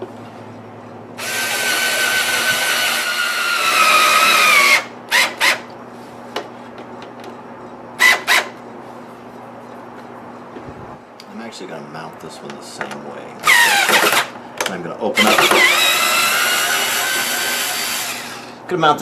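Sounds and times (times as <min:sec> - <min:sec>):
power drill drilling into wood: 0:01.2 - 0:05.6, 0:13.4 - 0:14.3, 0:15.2 - 0:18.5.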